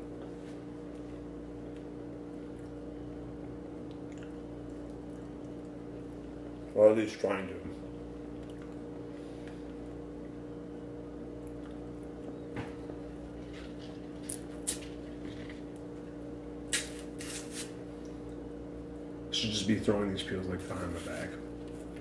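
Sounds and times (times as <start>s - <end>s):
steady low hum: 0.0s - 22.0s
wet chewing clicks and smacks: 1.7s - 6.8s, 8.2s - 10.5s, 11.3s - 12.4s.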